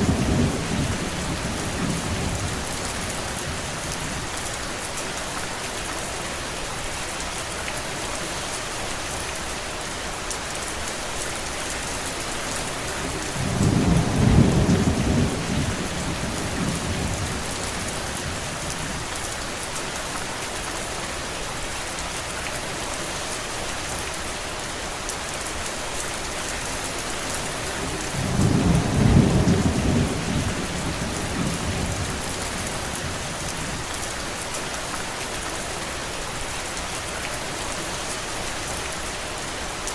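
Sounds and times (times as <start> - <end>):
low rolls of thunder: 0.0 - 3.6, 13.1 - 18.5, 27.4 - 33.8
steady rain falling: 0.0 - 39.9.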